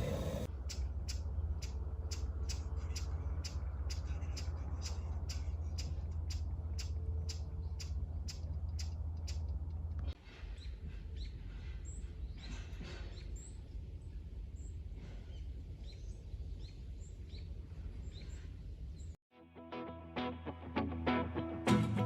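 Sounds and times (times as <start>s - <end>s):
low rumble with regular clicks: 0.0s - 10.2s
small birds chirping: 0.0s - 19.2s.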